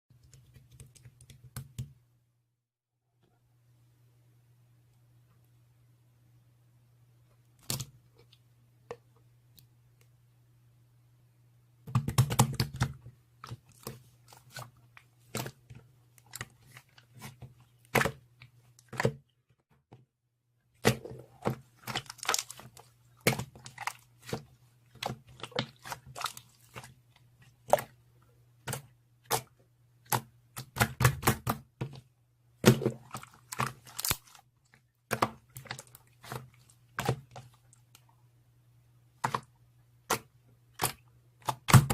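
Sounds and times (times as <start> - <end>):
slime popping and crackling: 21.8 - 24.0, 32.6 - 34.4.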